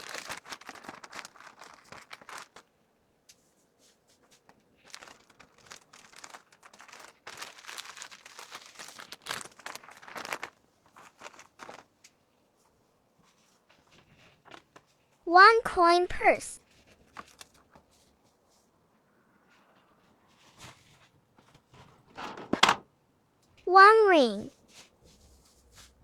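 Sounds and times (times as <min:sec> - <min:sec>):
plastic packaging crinkling: 0:00.0 - 0:02.7, 0:04.5 - 0:12.0, 0:16.9 - 0:17.8.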